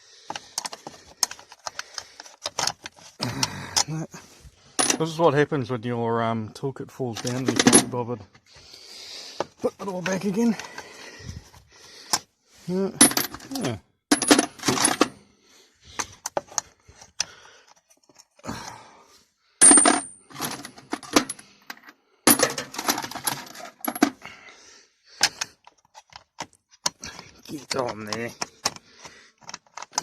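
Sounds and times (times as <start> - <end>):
metal tools clinking and rattling: 4.8 - 5.2, 7.1 - 8.0, 13.0 - 15.2, 19.6 - 24.2.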